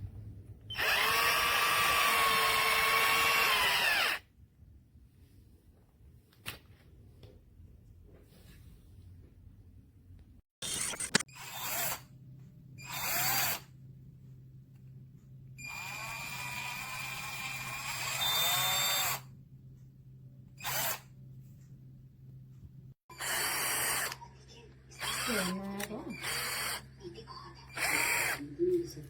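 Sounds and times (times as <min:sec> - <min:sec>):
cordless drill motor running: 0:00.7 - 0:04.2, 0:10.7 - 0:12.0, 0:12.8 - 0:13.7, 0:15.6 - 0:19.3, 0:20.6 - 0:21.0, 0:23.1 - 0:24.2, 0:24.9 - 0:26.9, 0:27.7 - 0:28.4.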